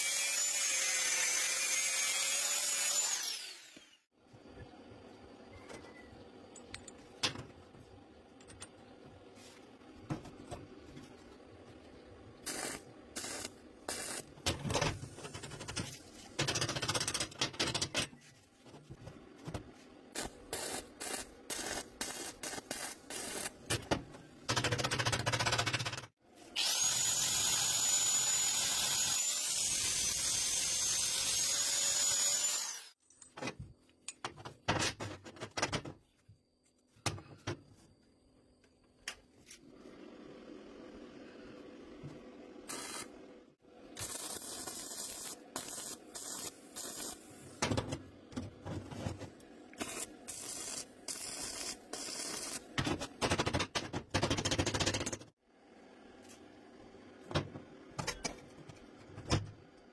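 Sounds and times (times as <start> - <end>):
power tool working metal: 26.6 - 33.0.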